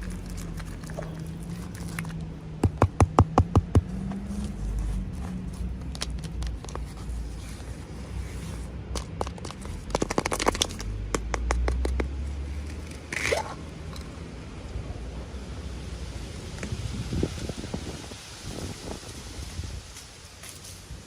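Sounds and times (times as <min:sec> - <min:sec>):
packaging scraping and crackling: 0:00.0 - 0:02.4, 0:03.9 - 0:11.8.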